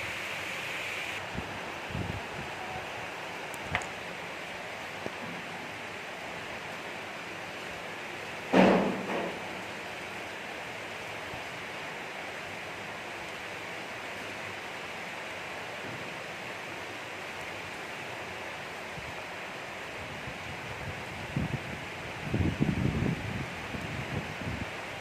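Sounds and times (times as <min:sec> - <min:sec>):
gentle rain falling: 0:00.0 - 0:25.0.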